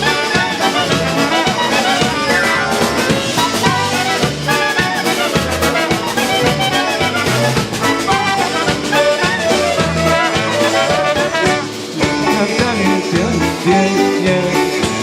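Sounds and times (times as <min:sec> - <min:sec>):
polka band playing: 0:00.0 - 0:15.0.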